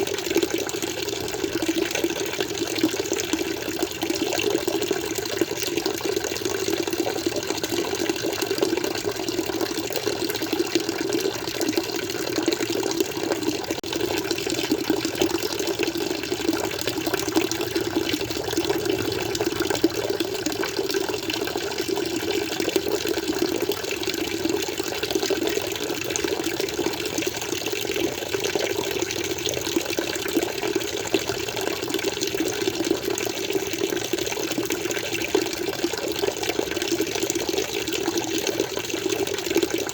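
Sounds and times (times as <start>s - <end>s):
aquarium water flowing: 0.0s - 39.9s
water bubbling: 9.0s - 30.6s.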